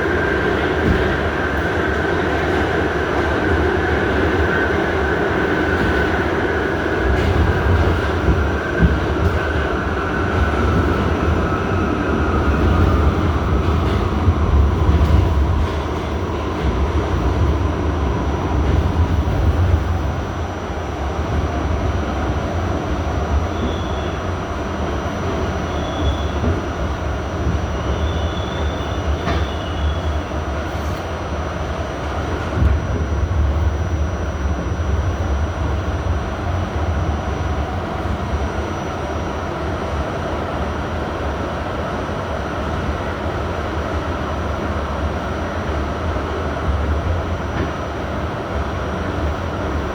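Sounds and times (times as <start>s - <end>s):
steel wheels rumbling on rail: 0.0s - 49.9s
faint wheel squeals: 23.5s - 24.2s, 25.7s - 26.4s, 27.8s - 30.4s.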